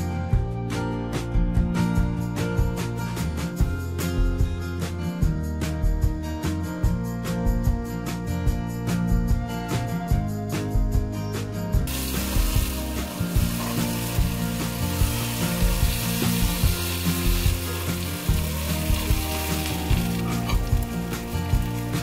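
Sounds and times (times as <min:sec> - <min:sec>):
background music: 0:00.0 - 0:22.0
oil sizzling in a frying pan: 0:11.9 - 0:22.0.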